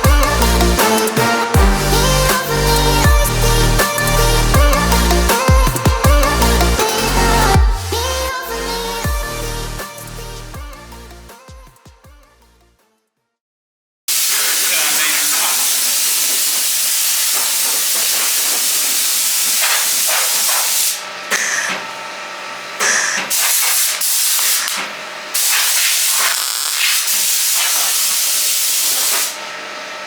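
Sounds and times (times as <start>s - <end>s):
sander hissing on car bodywork: 14.1s - 30.0s.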